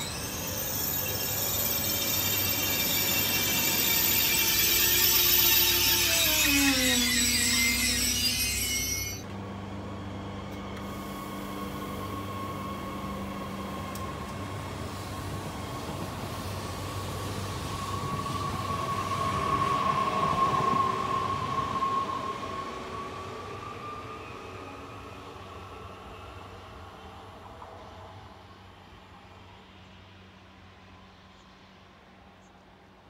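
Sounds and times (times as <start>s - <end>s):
high whine: 0.0s - 9.4s
train passing by: 0.0s - 33.0s.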